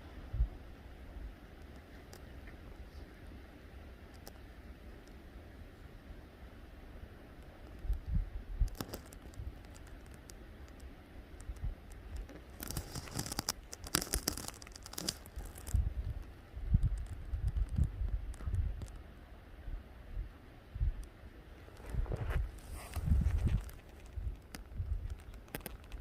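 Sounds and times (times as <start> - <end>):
lava crust crackling and clinking: 7.4 - 19.0, 21.6 - 26.0.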